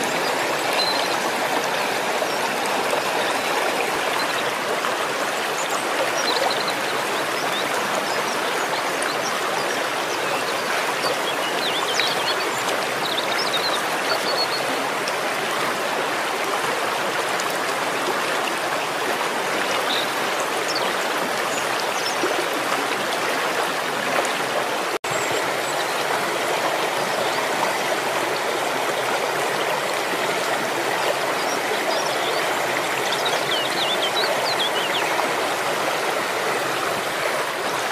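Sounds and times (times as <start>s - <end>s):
waterfall rushing: 0.0s - 6.8s, 23.1s - 37.9s.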